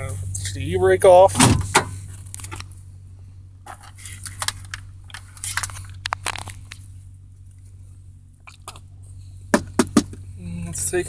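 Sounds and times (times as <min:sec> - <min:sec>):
truck engine idling: 0:00.0 - 0:11.0
clicks and rustles of handling: 0:03.7 - 0:06.9.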